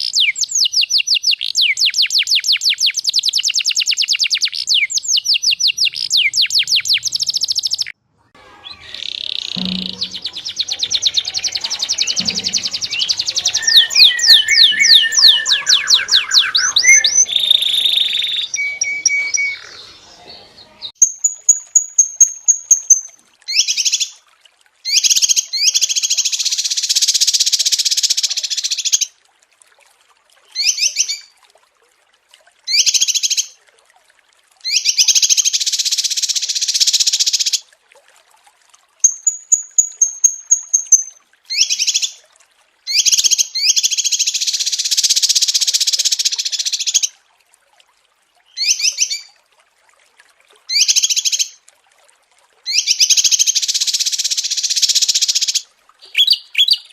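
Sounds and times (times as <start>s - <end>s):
songbird chirps and trills: 0.0s - 24.2s, 39.0s - 42.2s, 52.7s - 56.9s
thin high whistle: 8.4s - 16.0s.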